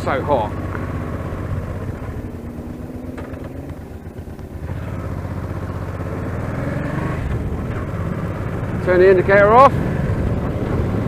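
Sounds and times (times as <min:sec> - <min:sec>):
muffled motorcycle engine: 0:00.0 - 0:11.0.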